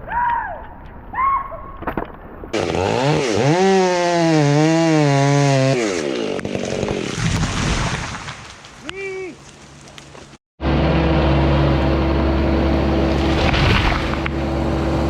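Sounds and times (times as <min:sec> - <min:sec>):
chainsaw revving: 0:02.6 - 0:07.2.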